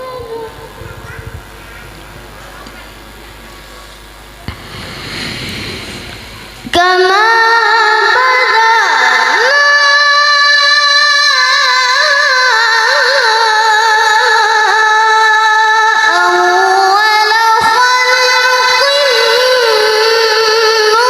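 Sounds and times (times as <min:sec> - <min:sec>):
child reciting melodically: 0:00.0 - 0:03.0, 0:06.6 - 0:21.0.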